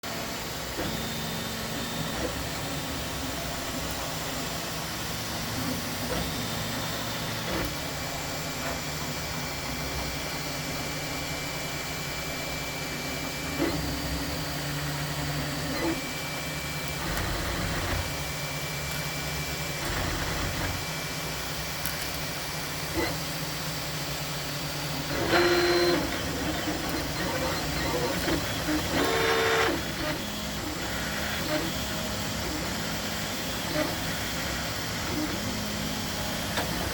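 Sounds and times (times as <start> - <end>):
printer fan hiss: 5.6 - 36.9
stepper motors whining: 8.6 - 23.3, 24.9 - 33.0.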